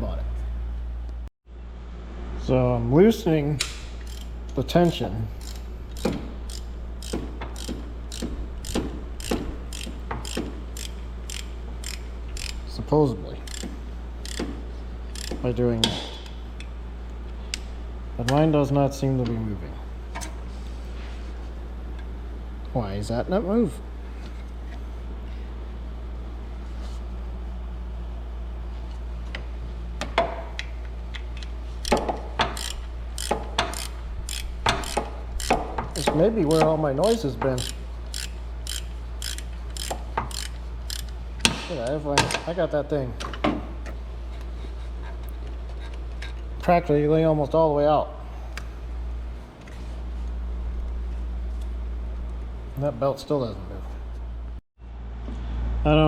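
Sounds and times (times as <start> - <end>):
steady low hum: 0.0 - 56.0
ratchet wrench clicking: 3.6 - 12.7, 13.4 - 15.4, 31.8 - 36.7, 37.5 - 41.2.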